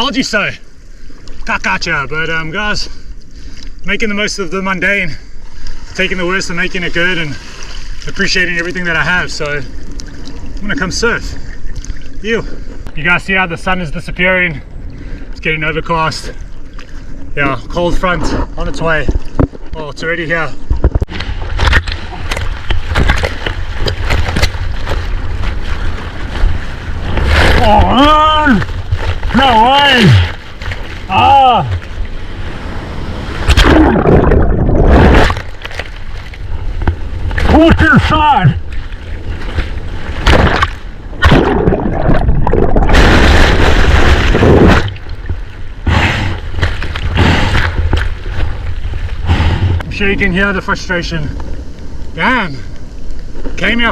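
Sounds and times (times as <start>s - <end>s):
low rumble of waves: 0.0s - 53.9s
water splashing: 5.5s - 12.8s, 16.0s - 49.3s
whitewater crashing and churning: 21.4s - 49.0s.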